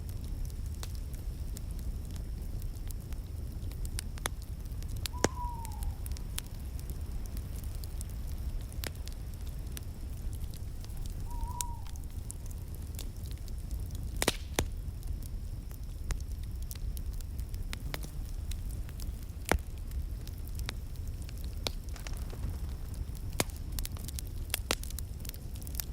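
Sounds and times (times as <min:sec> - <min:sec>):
wood fire crackling and popping: 0:00.0 - 0:25.9
short falling whistle: 0:05.1 - 0:06.0, 0:11.1 - 0:12.1.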